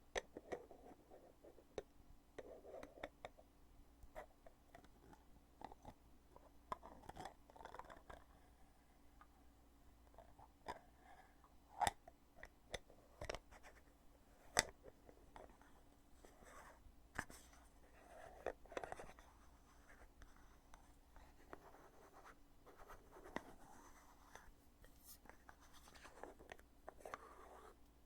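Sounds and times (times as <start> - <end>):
soft handling rustle: 14.4 - 28.0.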